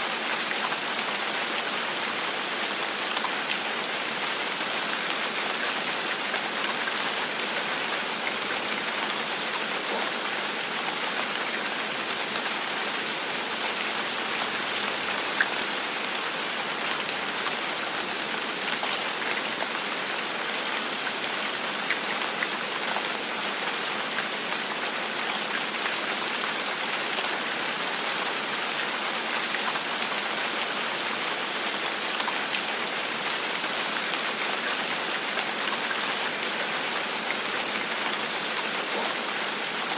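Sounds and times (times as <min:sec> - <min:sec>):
gentle rain: 0:00.0 - 0:39.9.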